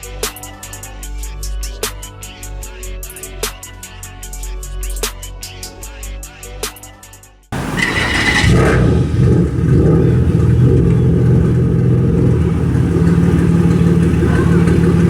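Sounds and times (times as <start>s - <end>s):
car engine starting and idling: 7.6s - 15.0s.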